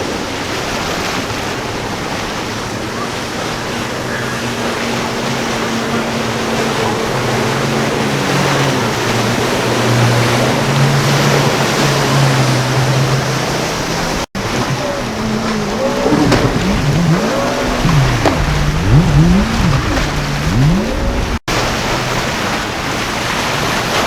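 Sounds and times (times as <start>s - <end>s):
motorboat engine drone: 0.0s - 24.0s
rushing water and surf: 0.0s - 24.0s
wavering pitch sounds: 4.0s - 21.4s.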